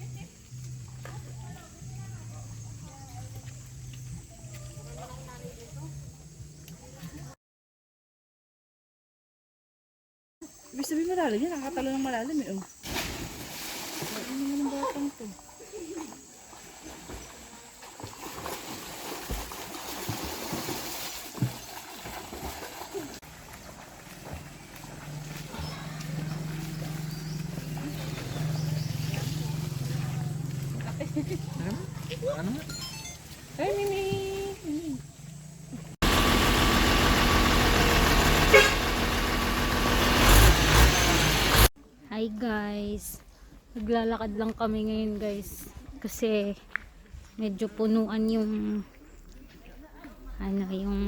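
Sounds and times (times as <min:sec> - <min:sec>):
motor vehicle running: 0:00.0 - 0:07.3, 0:21.6 - 0:41.7
water splashing and trickling: 0:12.1 - 0:35.1
horn toot: 0:36.0 - 0:41.7.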